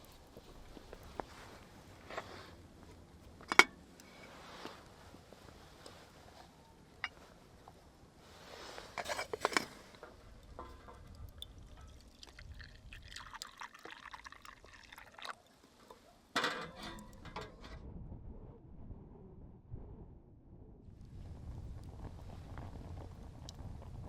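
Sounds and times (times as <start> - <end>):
clinks and knocks of handling: 3.4 - 4.3, 9.0 - 12.1, 15.8 - 17.7
liquid pouring into container: 10.4 - 15.7.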